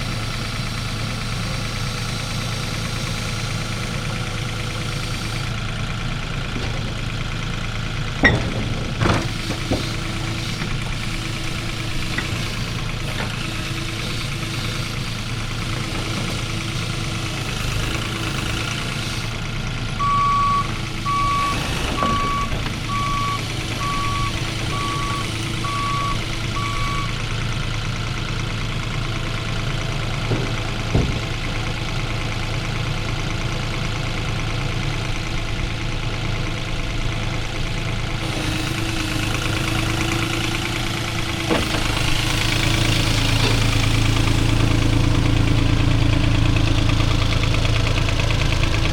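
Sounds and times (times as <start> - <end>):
heavy equipment diesel engine: 0.0 - 48.9
reversing alarm beeps: 20.0 - 27.2.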